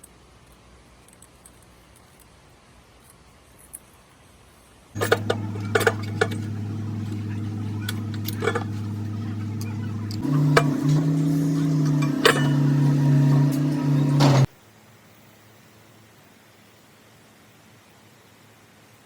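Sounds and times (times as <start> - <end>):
motor humming: 5.0 - 14.5.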